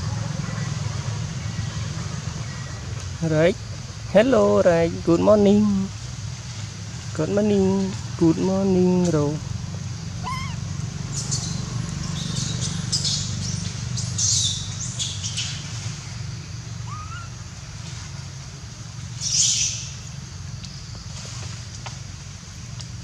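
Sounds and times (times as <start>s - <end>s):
birds chirping: 10.1s - 17.6s.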